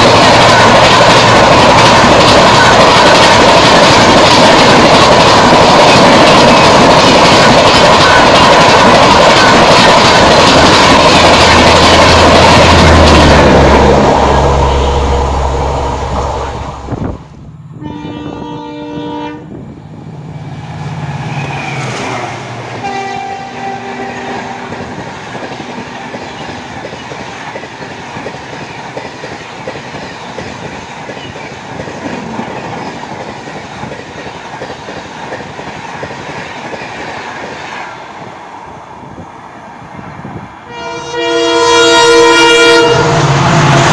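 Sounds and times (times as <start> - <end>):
train passing with wheel noise: 0.0 - 43.9
train rumbling on line: 0.0 - 43.9
locomotive horn: 17.8 - 19.6, 22.8 - 24.9, 40.7 - 43.9.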